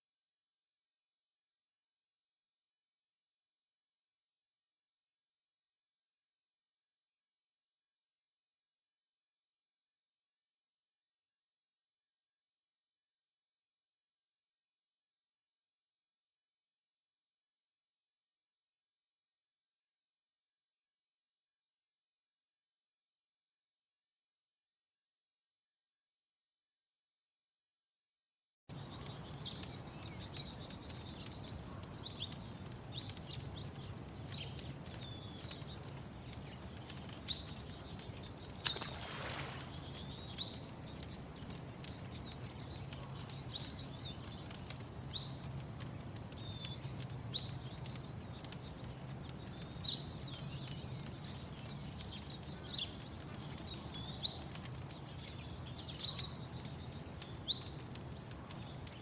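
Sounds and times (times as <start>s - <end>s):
small birds chirping: 28.7s - 59.0s.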